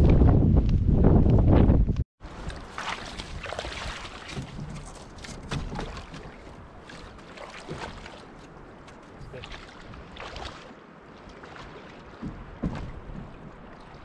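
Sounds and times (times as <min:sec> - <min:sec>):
knocks and scrapes on canoe hull: 0:02.7 - 0:09.3, 0:12.0 - 0:13.8.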